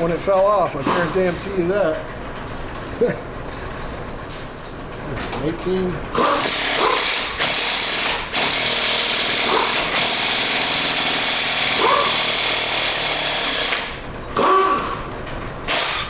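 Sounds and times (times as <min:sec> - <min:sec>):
impact wrench hammering: 0:06.1 - 0:16.0.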